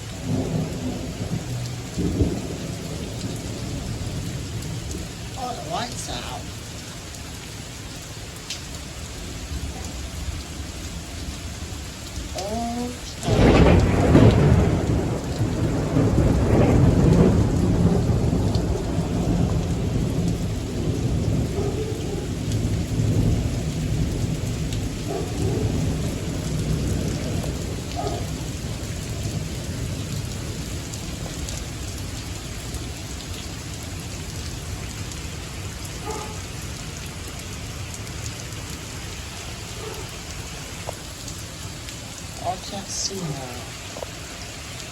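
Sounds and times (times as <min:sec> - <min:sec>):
steady rain: 0:00.0 - 0:44.9
thunderclap with low rumble: 0:00.2 - 0:05.3, 0:13.2 - 0:32.1.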